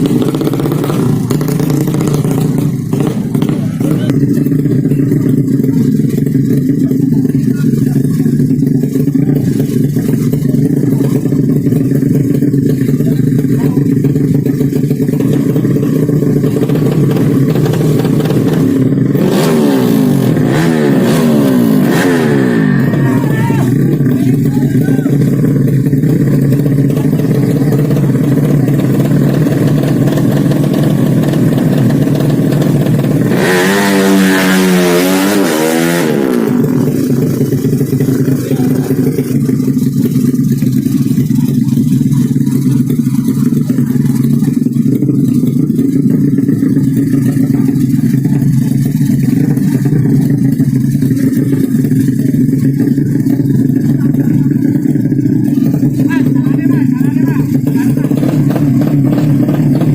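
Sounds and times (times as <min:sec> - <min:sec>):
motorcycle engine droning: 0:00.0 - 0:59.9
racing motorcycle passing by: 0:15.2 - 0:59.9.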